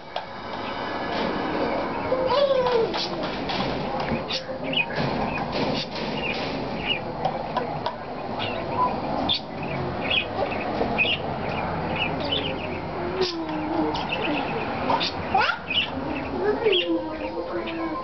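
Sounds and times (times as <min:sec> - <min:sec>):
small birds chirping: 0:04.0 - 0:18.0.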